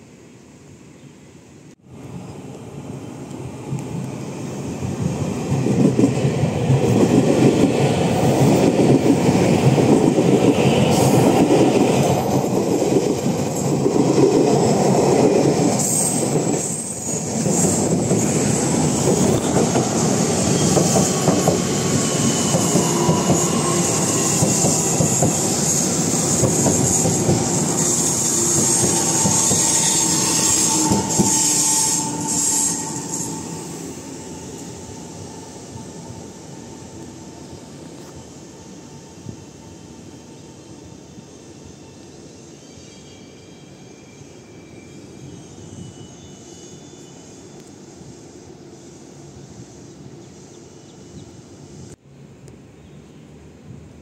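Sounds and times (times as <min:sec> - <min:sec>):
train passing: 0:00.0 - 0:54.0
thin wheel squeals: 0:27.7 - 0:33.8, 0:41.8 - 0:47.6.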